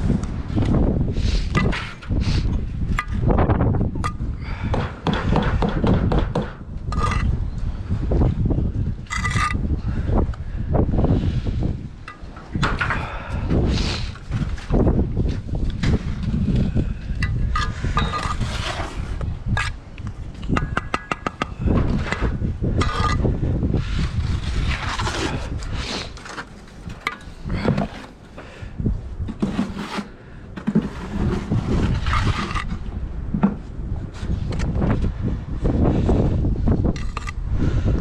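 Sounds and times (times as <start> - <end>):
wind rumbling on microphone: 0.0 - 38.0
trowel scraping mortar: 17.3 - 19.8, 21.1 - 26.9, 29.4 - 32.8.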